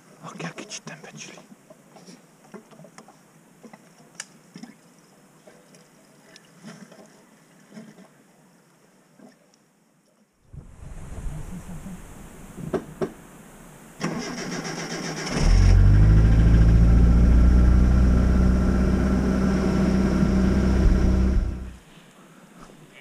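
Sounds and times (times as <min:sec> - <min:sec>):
car starter cranking: 0:14.0 - 0:16.6
car engine running: 0:15.6 - 0:21.8.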